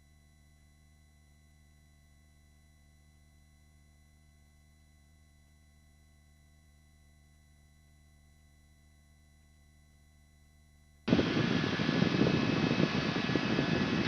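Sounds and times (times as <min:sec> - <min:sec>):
faint electronic hum: 0:00.0 - 0:14.0
helicopter cabin noise rush: 0:11.1 - 0:14.0.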